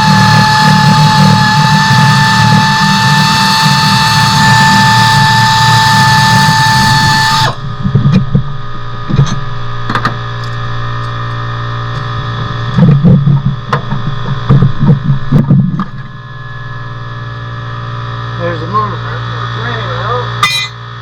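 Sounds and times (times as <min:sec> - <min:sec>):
low steady hum: 0:00.0 - 0:21.0
machine drone with high whine: 0:00.0 - 0:21.0
sharp clicks and knocks: 0:09.1 - 0:11.2, 0:12.8 - 0:16.1.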